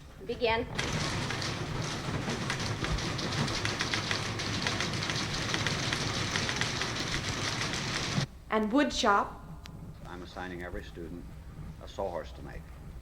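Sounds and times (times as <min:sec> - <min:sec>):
many typewriters clattering: 0:00.7 - 0:08.3.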